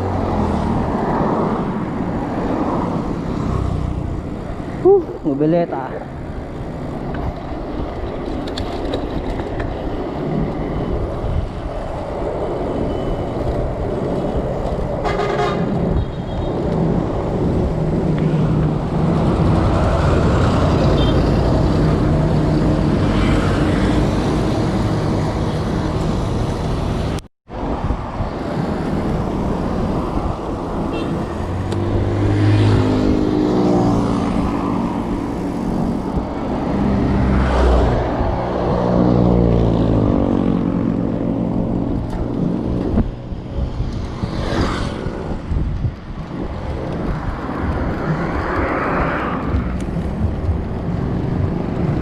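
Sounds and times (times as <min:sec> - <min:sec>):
road noise: 0:00.0 - 0:52.0
wind rushing over microphone: 0:00.0 - 0:52.0
passing vehicle engine: 0:28.6 - 0:52.0.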